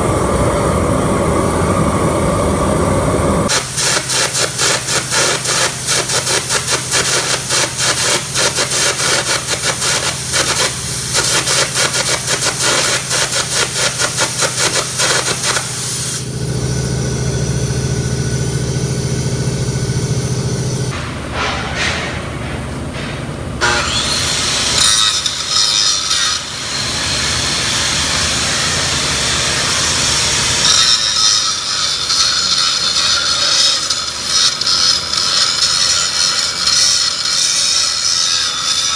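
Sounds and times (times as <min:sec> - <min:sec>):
high whine: 0:00.0 - 0:21.1
steady low hum: 0:00.0 - 0:25.4.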